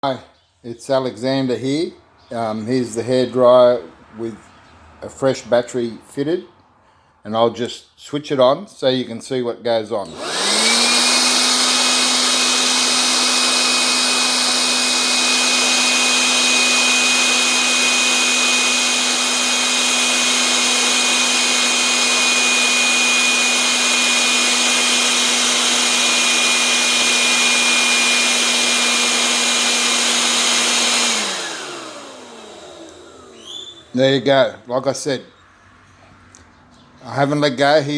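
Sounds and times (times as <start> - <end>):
hair dryer motor whine: 10.0 - 34.3.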